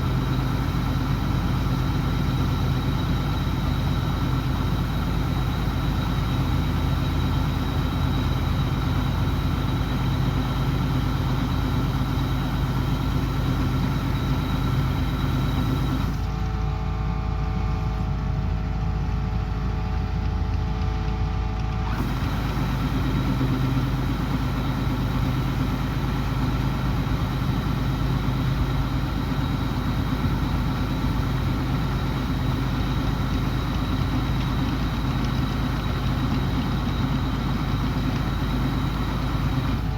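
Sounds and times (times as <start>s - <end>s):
combine harvester engine droning: 0.0s - 39.9s.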